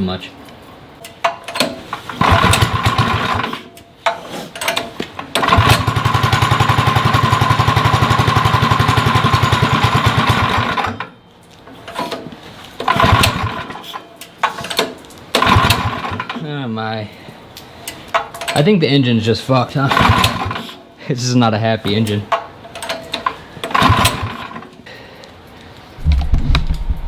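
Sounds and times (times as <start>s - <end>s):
small go-kart engine running: 2.1s - 3.6s, 5.4s - 11.1s, 12.8s - 14.0s, 15.4s - 16.4s, 19.9s - 20.8s, 23.7s - 24.6s.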